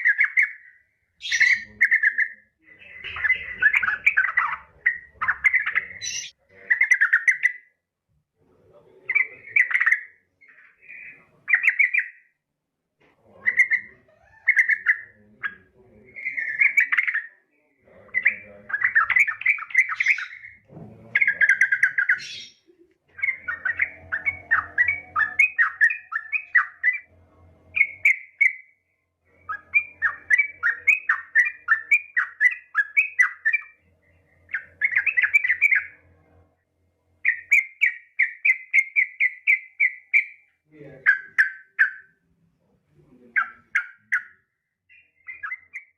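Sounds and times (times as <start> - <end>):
bird bubbling chattering calls: 23.2 - 27.0.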